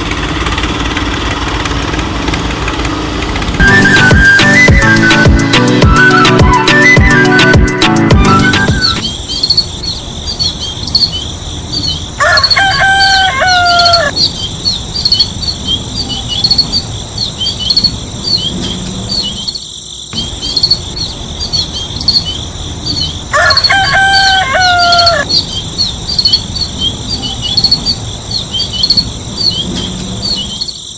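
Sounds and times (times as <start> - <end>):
small birds tweeting: 0.0 - 30.9
crickets chirping: 8.3 - 30.9
rooster crowing: 12.0 - 14.3, 23.0 - 25.4.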